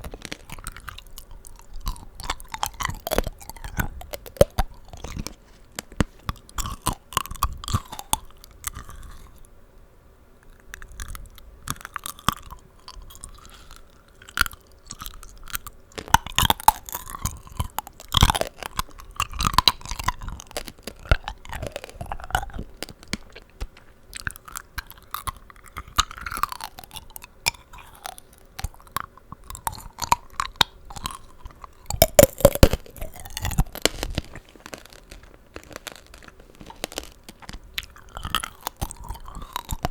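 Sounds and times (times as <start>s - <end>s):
candy shell crunching: 0.0s - 9.5s, 10.4s - 39.9s.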